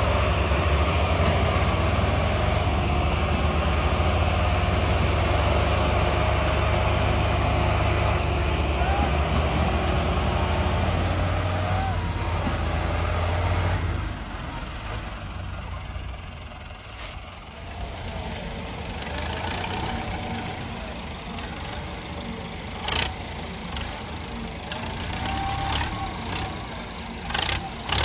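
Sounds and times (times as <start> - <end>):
diesel tractor engines under load: 0.0 - 28.0.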